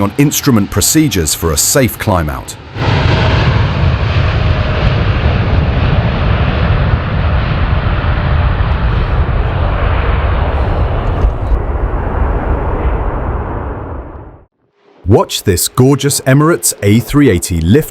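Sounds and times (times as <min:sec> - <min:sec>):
jet engines roaring at takeoff: 0:00.0 - 0:17.9.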